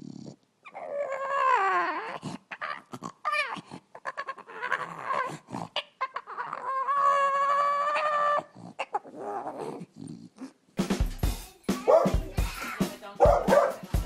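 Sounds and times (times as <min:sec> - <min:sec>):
dog whimpering and whining: 0:00.0 - 0:10.6
dog howling: 0:06.0 - 0:09.7.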